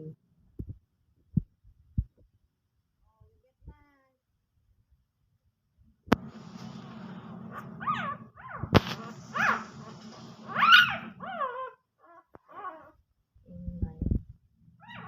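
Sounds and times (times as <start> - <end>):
steady low hum: 6.1 - 11.4
puppies whimpering and squealing: 7.8 - 8.7, 9.3 - 12.9.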